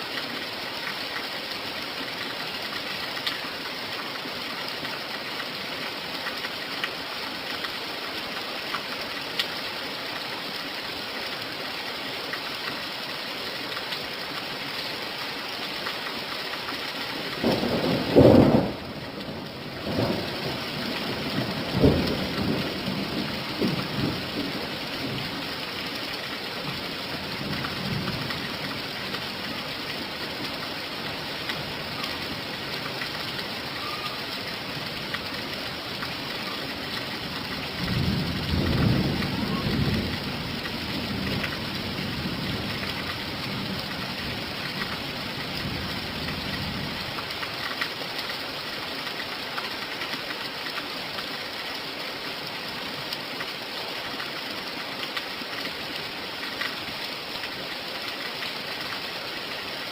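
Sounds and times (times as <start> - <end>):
steady rain falling: 0.0 - 59.9
thunder rumbling: 17.4 - 25.3.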